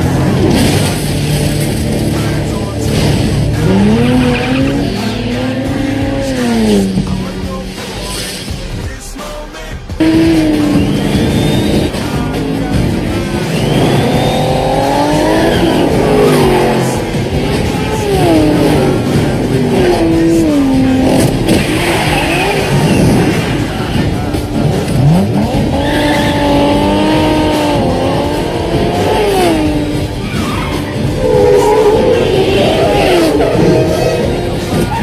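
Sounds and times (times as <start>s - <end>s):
car engines revving: 0.0s - 35.0s
tyres squealing: 10.0s - 23.3s, 25.0s - 35.0s.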